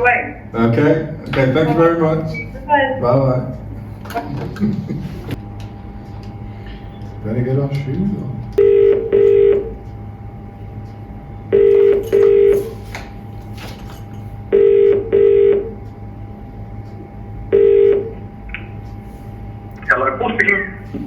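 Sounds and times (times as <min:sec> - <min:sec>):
telephone ringing tone: 0:08.6 - 0:09.8, 0:11.5 - 0:12.7, 0:14.5 - 0:15.8, 0:17.5 - 0:18.2.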